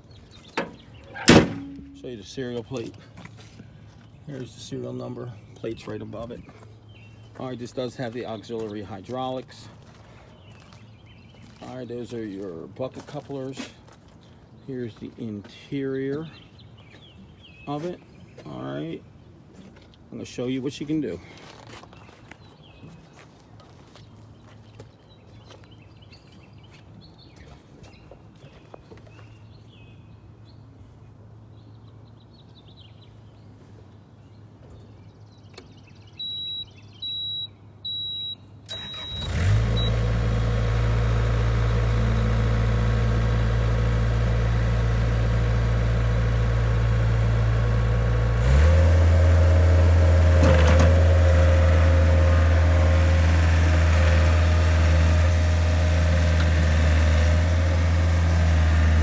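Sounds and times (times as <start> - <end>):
diesel engine starting and idling: 0.5 - 2.4, 38.7 - 59.0
high warning beeps: 36.2 - 38.4.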